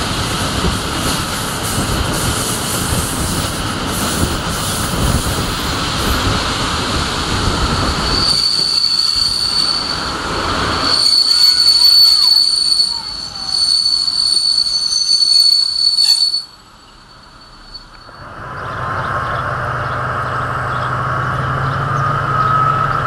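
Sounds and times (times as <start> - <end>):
train wheels rumbling and rattling: 0.0 - 23.0
high-pitched brake squeal: 8.0 - 18.3, 21.9 - 23.0.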